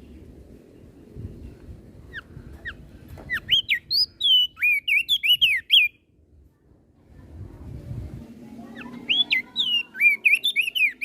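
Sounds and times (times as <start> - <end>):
bird singing whistled notes: 2.1 - 6.1, 8.7 - 11.0.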